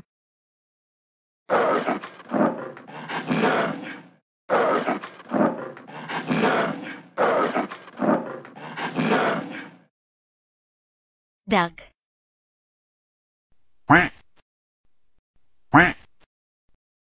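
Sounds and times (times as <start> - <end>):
tiger roaring: 1.5 - 9.9.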